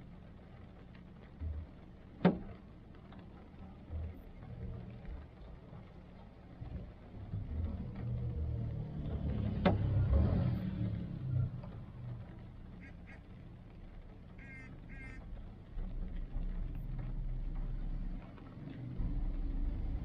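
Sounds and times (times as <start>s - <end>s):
rain falling on a car: 0.0s - 20.0s
car engine idling: 11.0s - 20.0s.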